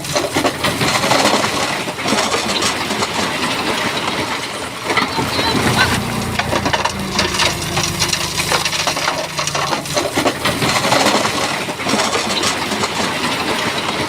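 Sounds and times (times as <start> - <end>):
bulldozer engine running: 4.8 - 12.3.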